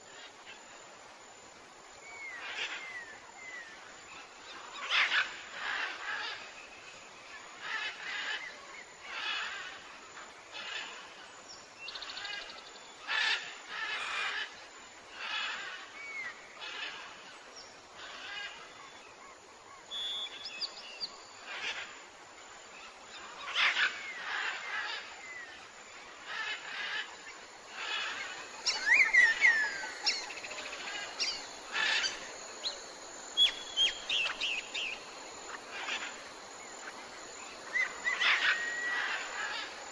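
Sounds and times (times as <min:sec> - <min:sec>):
thin bird chirps and whistles: 0:19.9 - 0:21.1
birds calling: 0:26.2 - 0:39.9.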